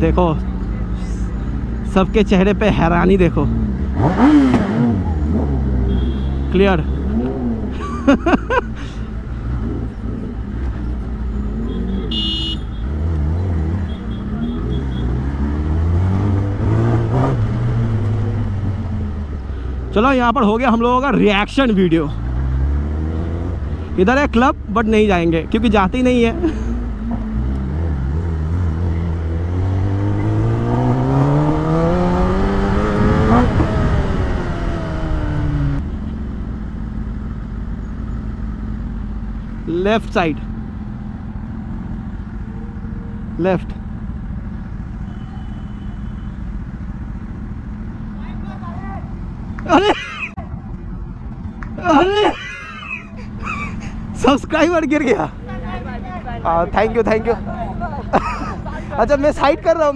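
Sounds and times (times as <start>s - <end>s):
motorcycle engine revving: 1.4s - 20.0s, 21.8s - 48.3s
vehicle horn honk: 5.8s - 7.1s, 11.6s - 13.0s, 13.8s - 15.2s, 45.0s - 46.4s.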